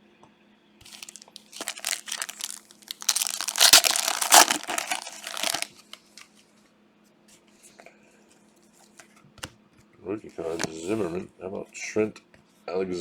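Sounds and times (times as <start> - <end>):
plastic wrapper tearing and crinkling: 0.8 - 5.8.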